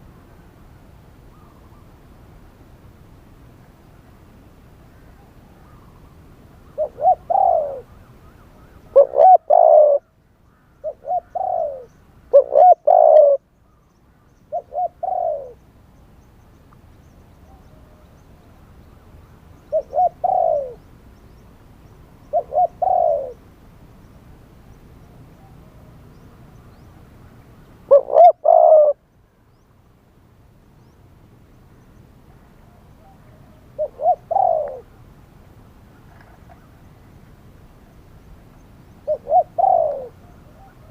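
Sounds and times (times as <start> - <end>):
dove cooing: 6.7 - 10.1, 10.8 - 13.4, 14.5 - 15.6, 19.7 - 20.9, 22.3 - 23.4, 27.9 - 29.0, 32.7 - 35.0, 39.0 - 40.9.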